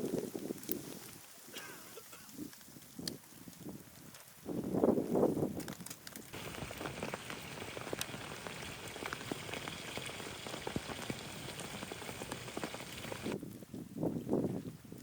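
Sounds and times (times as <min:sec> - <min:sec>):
rain pattering: 0:06.0 - 0:13.4.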